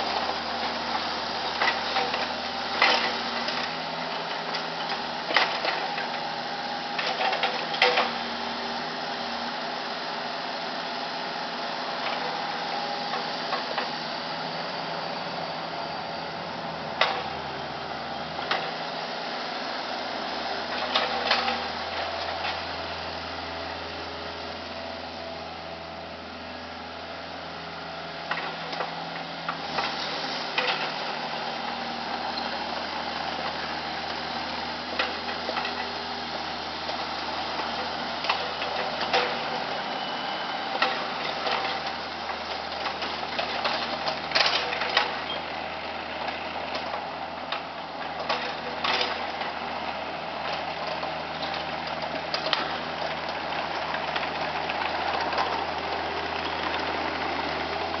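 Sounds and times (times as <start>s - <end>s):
excavator diesel engine running: 0.0s - 58.0s
machine clanks and knocks: 7.0s - 8.2s, 17.0s - 17.4s, 20.8s - 22.7s, 30.6s - 31.0s, 37.7s - 39.6s, 42.8s - 45.4s.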